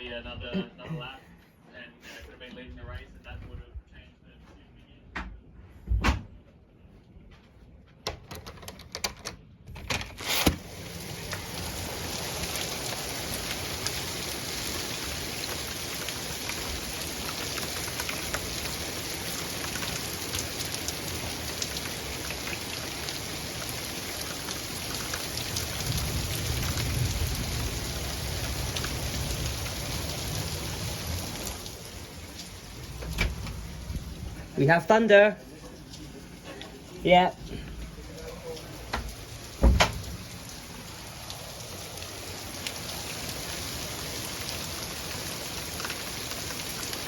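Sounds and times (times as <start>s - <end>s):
clicks and knocks: 8.0s - 10.6s
heavy rain pouring: 9.8s - 47.0s
low thunder rumble: 25.8s - 31.4s, 32.6s - 34.6s.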